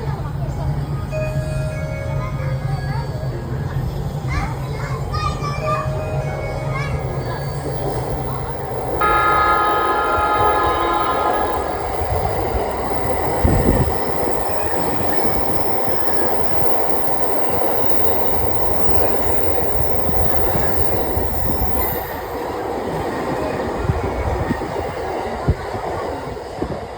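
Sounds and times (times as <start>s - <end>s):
train rumbling on rails: 0.0s - 26.9s
train horn: 7.2s - 14.9s.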